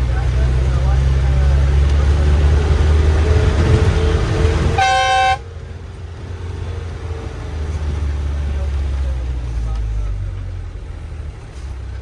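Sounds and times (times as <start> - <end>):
bus engine and road rumble: 0.0 - 12.0
vehicle horn honk: 4.8 - 5.5.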